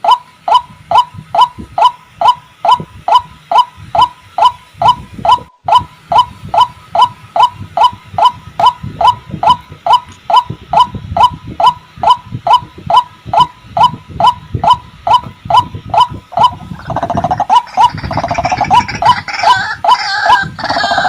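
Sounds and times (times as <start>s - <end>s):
waterhen calling: 16.4s - 21.0s.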